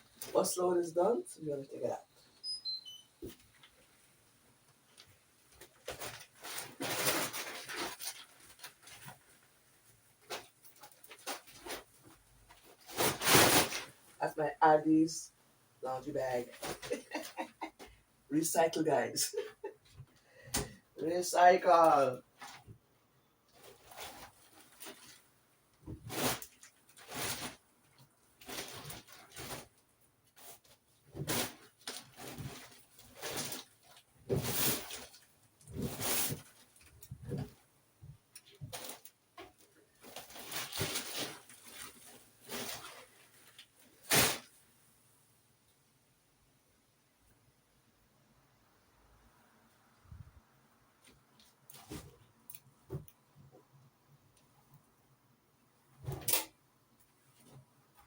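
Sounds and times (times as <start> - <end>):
laundry rustling: 3.2 - 14.3, 16.0 - 22.8, 23.4 - 44.6
household items rustling and knocking: 16.4 - 18.0, 23.5 - 27.6, 30.4 - 44.5, 51.1 - 53.6.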